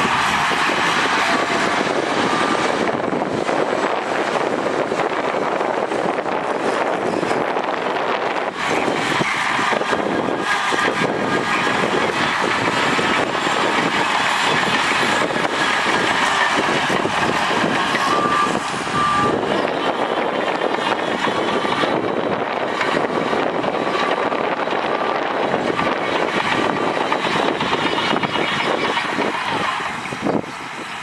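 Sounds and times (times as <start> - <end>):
heavy machinery running under load: 0.0 - 31.0
short beeps: 18.0 - 19.4.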